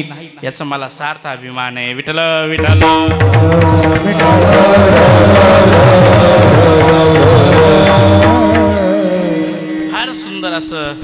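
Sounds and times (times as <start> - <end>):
wavering melody line: 2.6 - 11.0
rapid low drum strokes: 3.2 - 9.2
steady drone: 3.4 - 10.0
high jingle of cymbals: 3.7 - 11.0.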